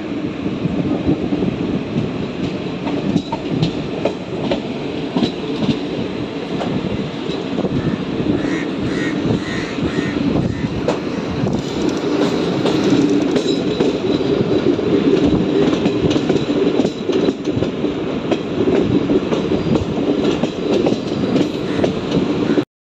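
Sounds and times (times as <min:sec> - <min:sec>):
train wheels rumbling on rail: 0:00.0 - 0:22.6
clattering over rail joints: 0:10.9 - 0:22.3.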